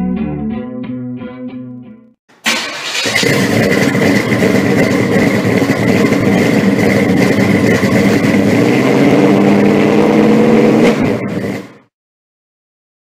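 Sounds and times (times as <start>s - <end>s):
car engine idling: 2.4s - 11.8s.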